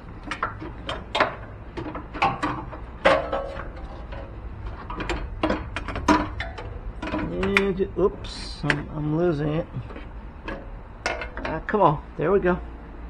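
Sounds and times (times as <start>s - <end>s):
metal clanks and knocks: 0.0s - 7.8s, 9.8s - 11.7s.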